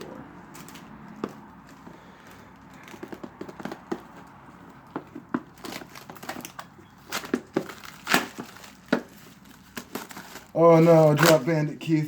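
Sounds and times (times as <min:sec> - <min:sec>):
foil wrapper crinkling and tearing: 0:05.5 - 0:11.9.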